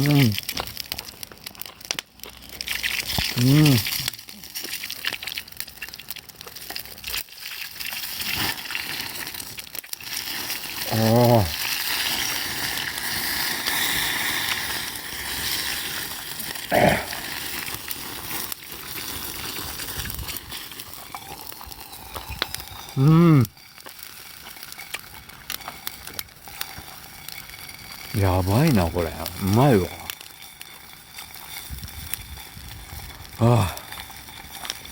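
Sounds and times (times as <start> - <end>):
campfire crackling: 0.0 - 34.9
small clicks and rustles: 0.3 - 10.6
man humming: 3.4 - 4.0, 10.9 - 11.5, 16.7 - 17.2, 23.0 - 23.6, 33.4 - 33.9.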